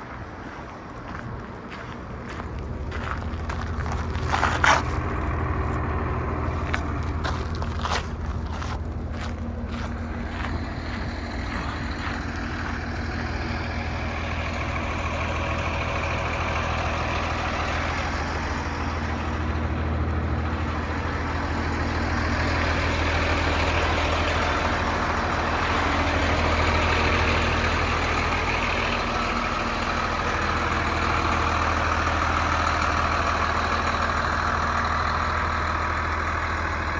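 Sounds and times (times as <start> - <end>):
diesel truck engine idling: 0.0 - 36.9.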